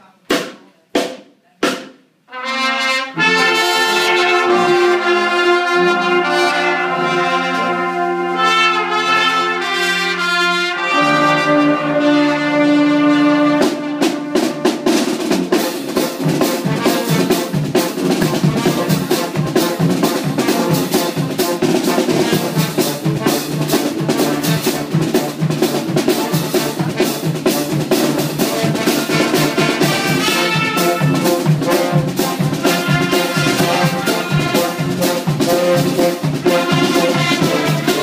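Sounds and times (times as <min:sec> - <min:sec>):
drum kit beat: 0:00.0 - 0:38.0
brass band playing: 0:01.6 - 0:38.0.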